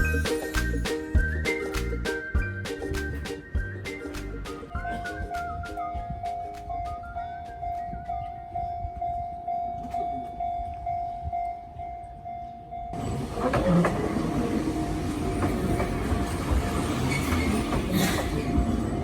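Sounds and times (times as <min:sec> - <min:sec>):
electric train passing: 0:06.5 - 0:19.0.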